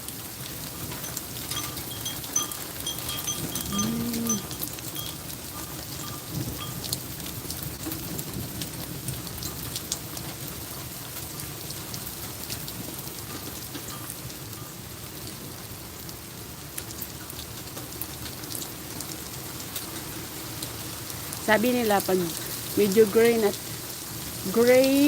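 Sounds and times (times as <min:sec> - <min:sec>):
rain pattering: 0:00.0 - 0:25.0
sharp ticks of drops: 0:00.9 - 0:07.0.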